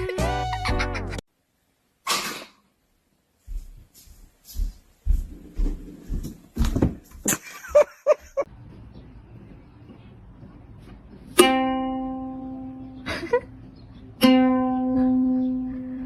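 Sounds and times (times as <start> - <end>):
plucked string note: 11.4 - 13.0, 14.2 - 16.0.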